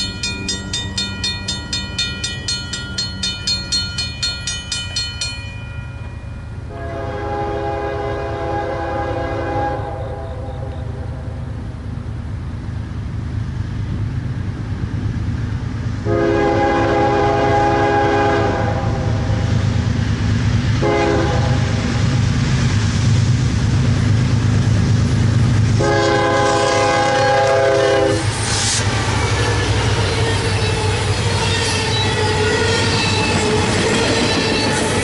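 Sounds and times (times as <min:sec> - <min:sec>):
wheels clattering on rails: 0:00.0 - 0:06.7, 0:21.8 - 0:35.0
locomotive rumble: 0:00.0 - 0:35.0
locomotive air horn blasts: 0:06.7 - 0:11.4, 0:16.0 - 0:19.3, 0:20.8 - 0:21.8, 0:25.8 - 0:28.4.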